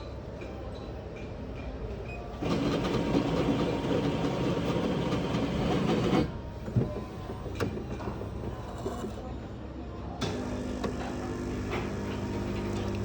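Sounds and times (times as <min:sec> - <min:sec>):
coffee machine whirring: 0:02.3 - 0:09.4, 0:10.2 - 0:13.0.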